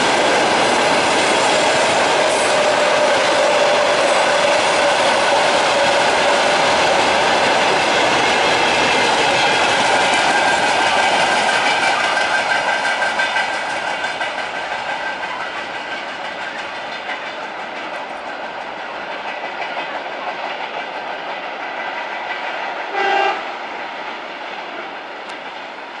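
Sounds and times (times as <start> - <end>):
freight train wheels clacking: 0.0 - 26.0
train horn toot: 1.8 - 6.4, 22.9 - 23.5.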